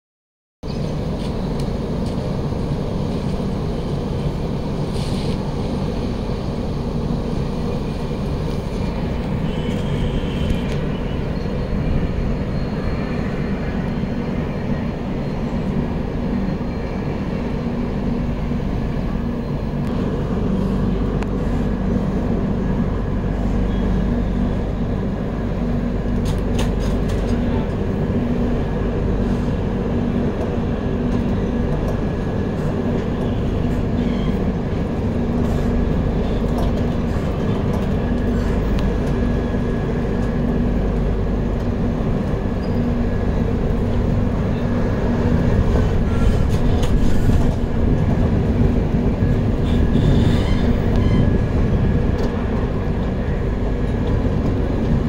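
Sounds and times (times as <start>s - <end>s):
train wheels rumbling on rail: 0.6s - 55.0s.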